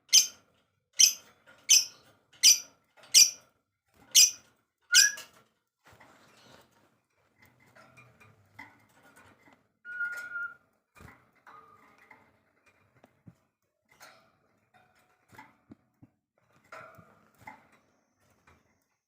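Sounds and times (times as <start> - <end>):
bird whistled note: 4.9 - 5.2, 9.9 - 10.6.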